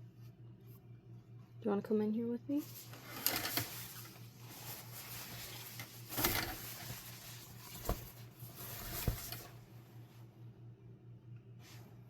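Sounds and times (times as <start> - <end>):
steady low hum: 0.0 - 12.0
rustling and handling noise: 2.5 - 10.4.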